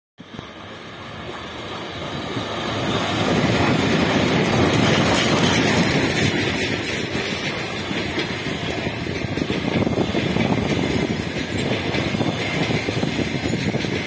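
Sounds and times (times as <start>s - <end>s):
train wheels rumbling on rails: 0.2s - 14.0s.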